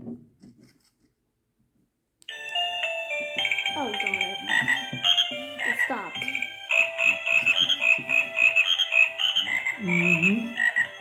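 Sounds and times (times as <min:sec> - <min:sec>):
toy frog croaking song: 0:02.3 - 0:11.0
tinny electronic notes: 0:03.4 - 0:11.0.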